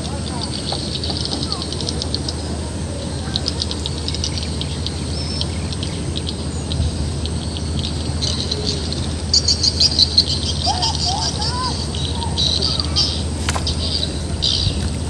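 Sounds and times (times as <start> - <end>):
low background rumble: 0.0 - 15.0
small birds twittering: 0.0 - 15.0.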